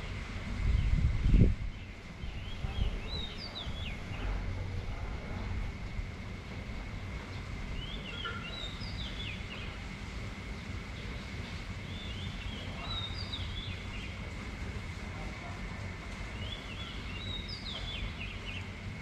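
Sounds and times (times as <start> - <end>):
rain hissing: 0.0 - 19.0
wind rumbling on microphone: 0.0 - 19.0
bird chirping: 7.3 - 9.8, 11.9 - 14.2, 16.4 - 18.7.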